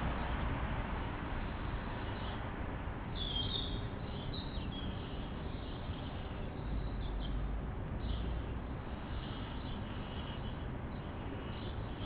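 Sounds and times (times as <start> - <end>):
birds chirping: 8.0 - 12.0.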